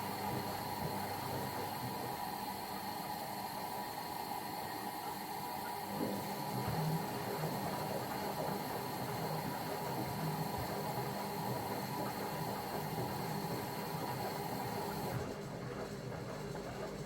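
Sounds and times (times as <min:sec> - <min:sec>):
washing machine drum motor humming: 0:05.9 - 0:17.0.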